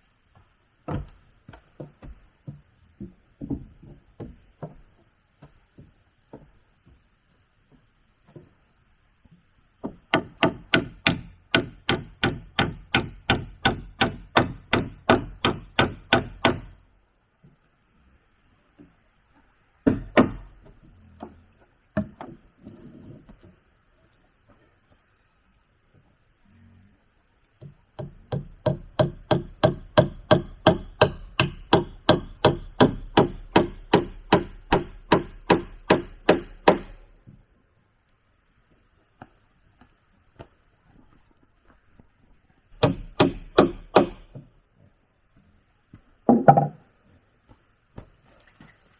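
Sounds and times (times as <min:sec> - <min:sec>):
tool striking wood: 0:09.8 - 0:16.8, 0:19.8 - 0:20.5, 0:27.6 - 0:37.1, 0:42.8 - 0:44.4.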